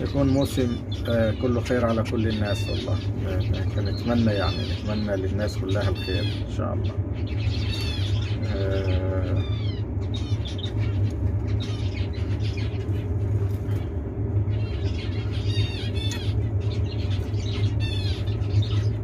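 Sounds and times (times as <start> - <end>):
finches chirping: 0.0 - 19.0
steady low hum: 0.0 - 19.0.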